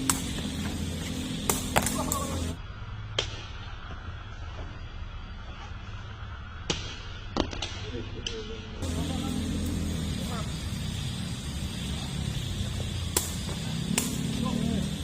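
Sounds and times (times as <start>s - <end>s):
low background hum: 0.0s - 15.0s
ball being kicked: 1.4s - 2.5s.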